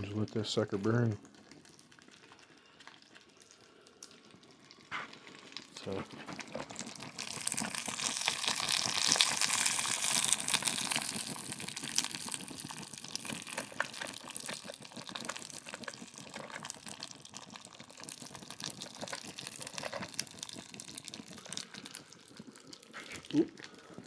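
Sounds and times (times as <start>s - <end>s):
fire crackling and sizzling: 0.0s - 24.0s.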